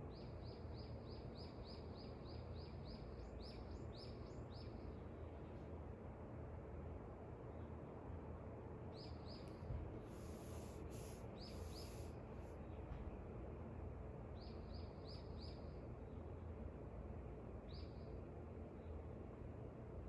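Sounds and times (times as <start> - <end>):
wind: 0.0 - 20.0
small birds chirping: 10.1 - 12.2.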